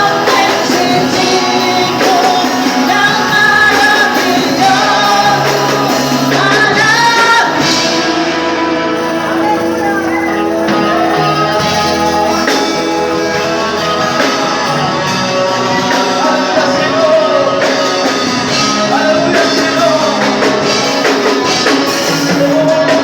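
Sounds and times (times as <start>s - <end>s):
person singing long notes: 0.0s - 9.7s
guitar: 0.0s - 23.0s.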